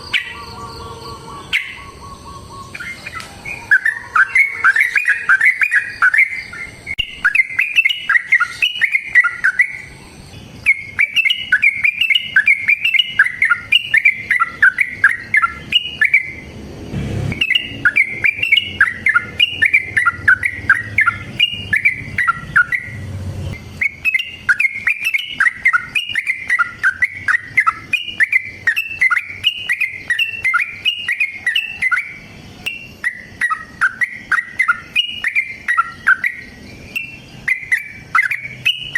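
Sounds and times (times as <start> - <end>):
bird singing bubbly phrases: 0.0 - 16.5, 17.3 - 38.9
faint low rumble: 16.3 - 23.8.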